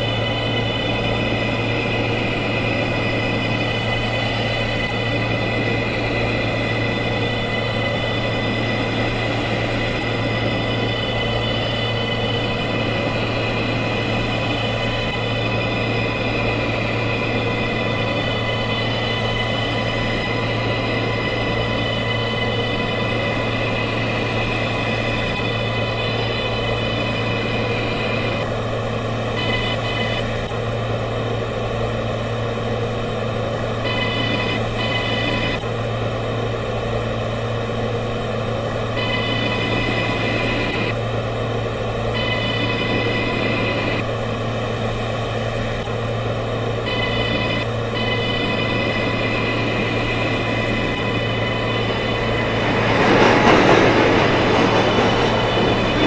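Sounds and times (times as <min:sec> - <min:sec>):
high steady tones: 0:00.0 - 0:28.4, 0:46.9 - 0:56.0
high electric whine: 0:00.0 - 0:56.0
subway train rumbling: 0:00.0 - 0:56.0
wheels rumbling on rails: 0:50.7 - 0:56.0.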